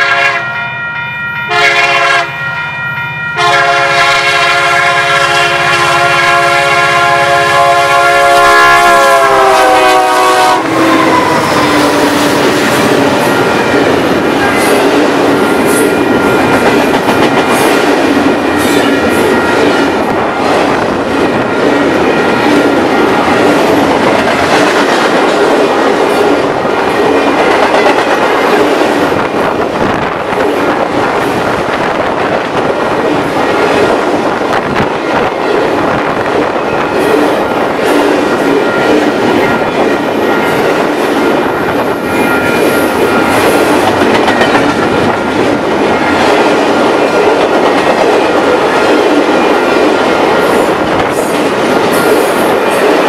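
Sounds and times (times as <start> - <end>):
locomotive air horn: 0.0 - 0.6, 1.5 - 2.4, 3.4 - 13.2.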